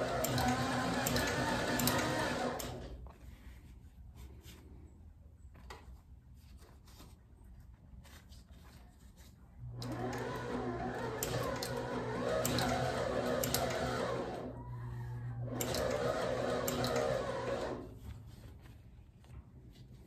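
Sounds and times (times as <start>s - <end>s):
sewing machine stitching leather: 0.0s - 3.0s, 9.6s - 18.3s.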